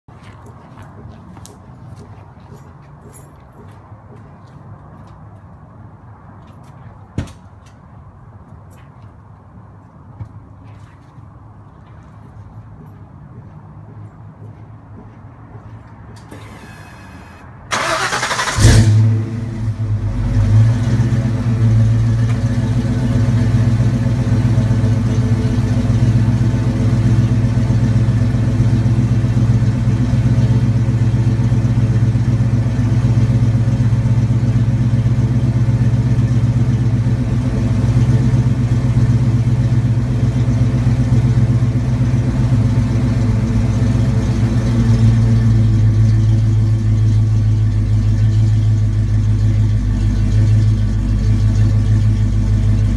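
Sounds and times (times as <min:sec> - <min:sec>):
car engine idling: 0:16.4 - 0:52.9.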